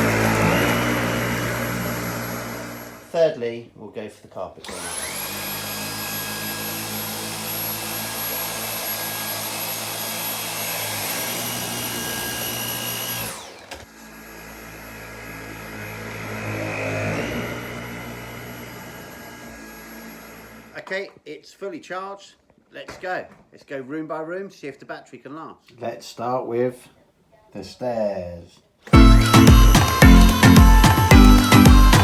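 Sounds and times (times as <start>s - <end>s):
vacuum cleaner motor whine: 0.0s - 3.1s, 4.6s - 20.8s.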